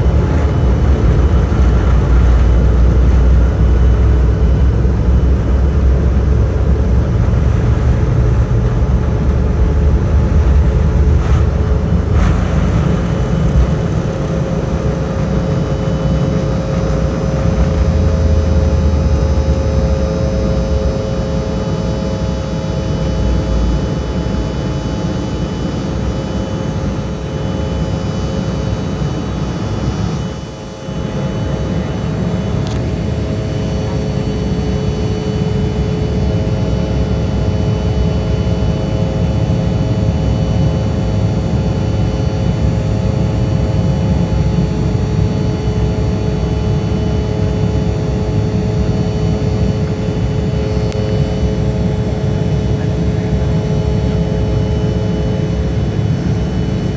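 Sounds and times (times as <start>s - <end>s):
jet engines whining: 0.0s - 22.6s.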